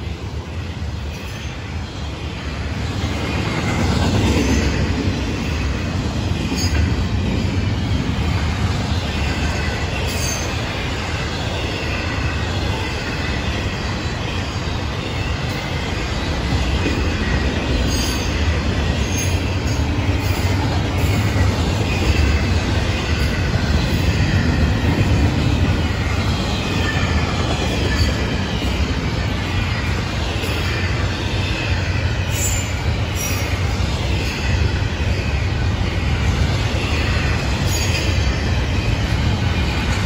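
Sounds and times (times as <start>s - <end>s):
freight train wheels rumbling: 0.0s - 40.0s
high wheel squeal: 9.1s - 16.0s, 16.9s - 40.0s.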